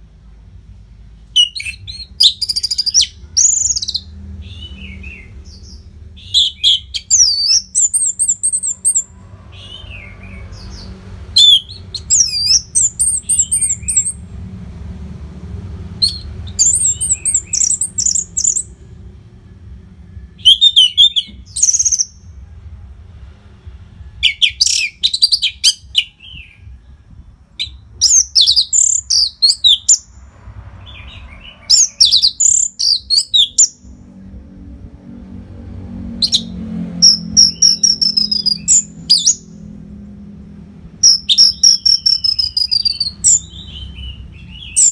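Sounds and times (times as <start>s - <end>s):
thrush singing whistled phrases: 1.4s - 5.3s, 6.2s - 9.1s, 11.4s - 14.2s, 16.0s - 18.7s, 20.4s - 22.2s, 24.2s - 26.6s, 27.6s - 30.0s, 31.7s - 33.8s, 36.2s - 39.4s, 41.0s - 44.9s.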